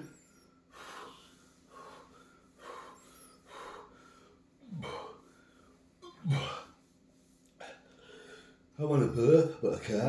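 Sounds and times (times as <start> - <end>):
man breathing hard: 0.6 - 5.8, 7.6 - 8.7.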